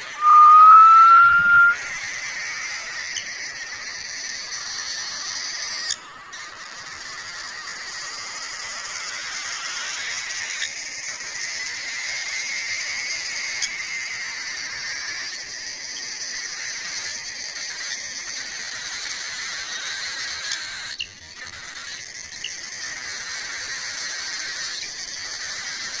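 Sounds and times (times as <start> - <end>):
parakeets chattering: 13.5 - 26.0.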